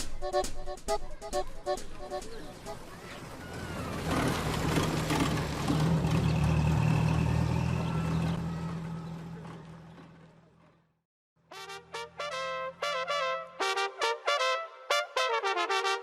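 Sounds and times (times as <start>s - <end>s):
low engine-like rumble: 2.5s - 10.9s.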